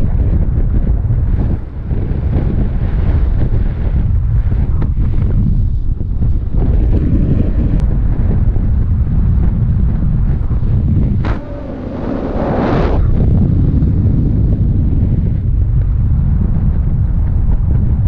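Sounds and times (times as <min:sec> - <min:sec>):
wind buffeting microphone: 0:00.0 - 0:18.0
hissing rush of air: 0:11.2 - 0:13.8.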